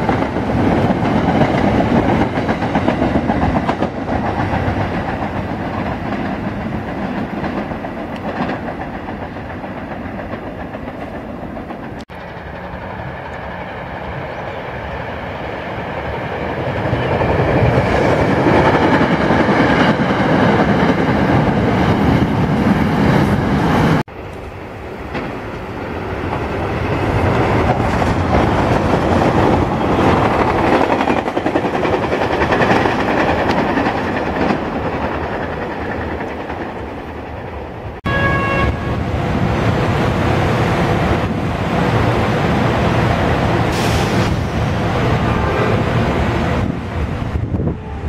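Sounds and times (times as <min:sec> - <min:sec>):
electric train passing: 0:00.0 - 0:48.0
train horn note: 0:38.0 - 0:39.1.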